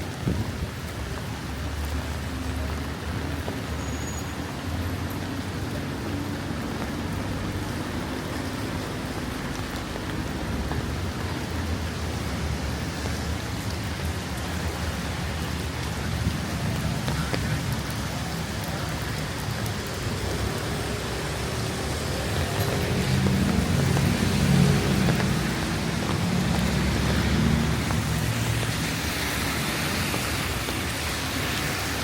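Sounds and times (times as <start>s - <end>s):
raindrops pattering: 0.0s - 32.0s.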